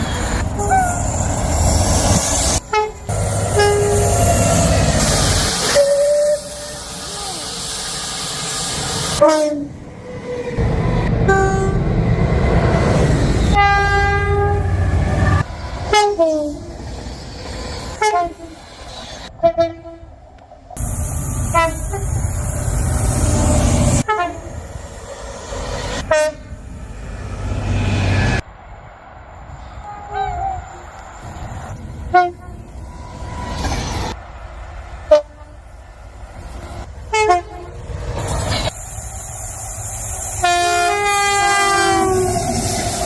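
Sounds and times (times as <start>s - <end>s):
train rumble: 0.0s - 43.0s
train horn chord: 2.7s - 4.2s, 40.4s - 42.3s
short train whistle toots: 5.6s - 7.6s.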